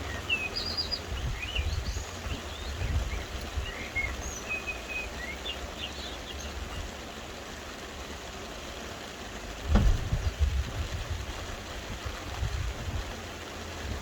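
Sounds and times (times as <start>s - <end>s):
birds chirping: 0.0s - 7.2s
soft rain hissing: 0.0s - 14.0s.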